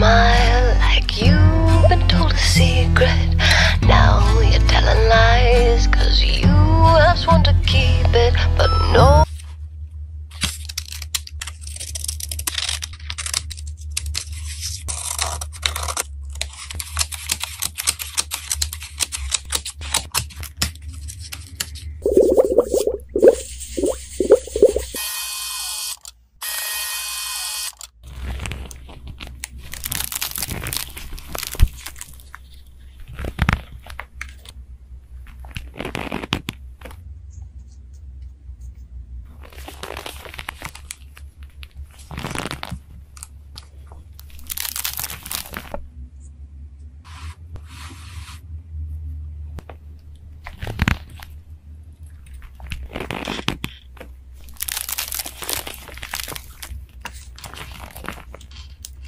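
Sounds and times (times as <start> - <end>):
paper crinkling and tearing: 10.4 - 21.4, 28.1 - 34.5, 35.2 - 36.9, 39.4 - 45.8, 50.4 - 51.4, 52.1 - 59.0
low steady hum: 22.0 - 25.0.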